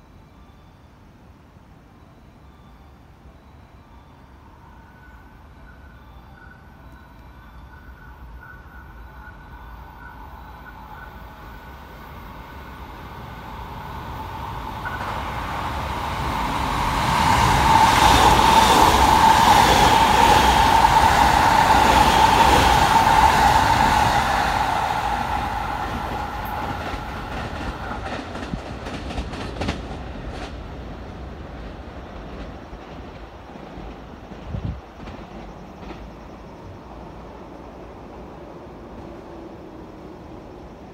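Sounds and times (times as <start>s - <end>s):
train wheels rumbling on rails: 12.2s - 40.9s.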